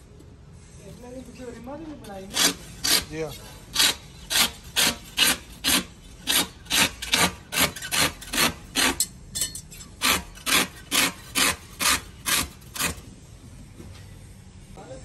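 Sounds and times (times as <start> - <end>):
hand tool scraping tyre: 2.3 - 13.1.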